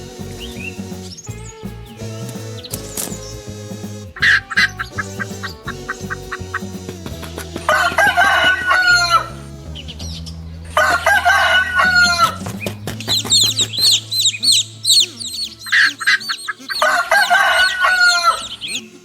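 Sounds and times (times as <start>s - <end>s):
rapid high-pitched chirps: 0.0s - 19.0s
rooster crowing: 7.5s - 10.0s, 10.7s - 12.6s, 14.0s - 18.8s.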